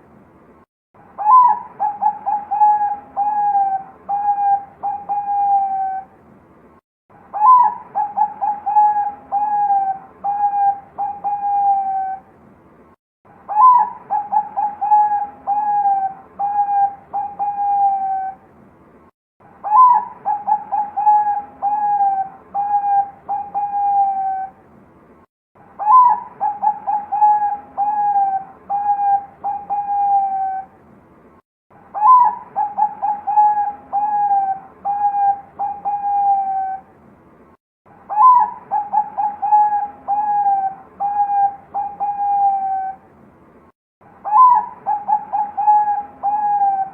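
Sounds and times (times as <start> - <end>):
dove cooing: 1.2 - 6.1, 7.3 - 12.2, 13.5 - 18.4, 19.6 - 24.6, 25.8 - 30.7, 32.0 - 36.9, 38.1 - 43.0, 44.2 - 46.9.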